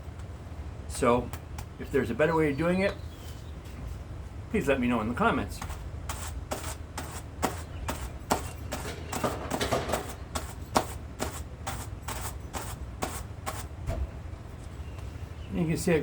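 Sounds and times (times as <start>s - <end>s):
hand carders brushing fur: 5.6s - 13.7s.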